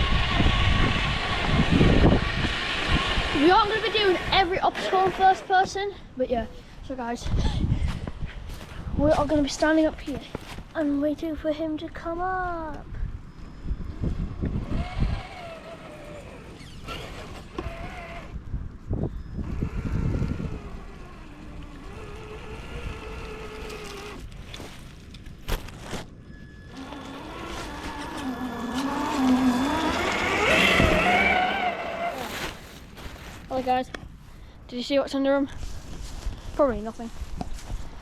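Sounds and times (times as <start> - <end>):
toy car electric motor whining: 0.0 - 5.7, 14.4 - 24.4, 26.5 - 32.5.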